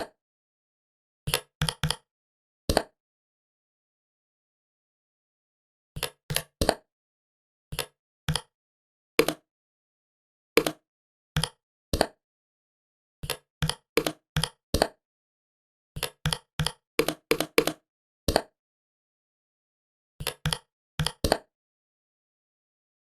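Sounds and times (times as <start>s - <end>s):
computer keyboard key clicks: 1.3s - 2.0s, 7.8s - 8.5s, 9.2s - 9.4s, 10.6s - 10.8s, 11.4s - 12.1s, 13.2s - 14.9s, 16.0s - 18.5s, 20.2s - 21.4s.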